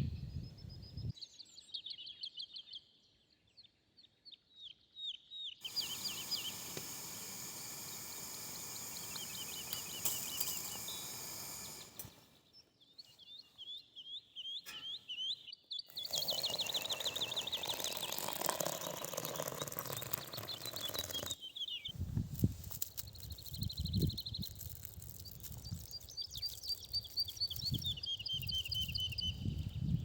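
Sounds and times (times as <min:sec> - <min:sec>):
songbirds chirping: 0:00.0 - 0:30.0
bird fast trill: 0:05.6 - 0:12.3, 0:14.6 - 0:22.0
outdoor hiss: 0:05.6 - 0:12.4, 0:15.9 - 0:27.6.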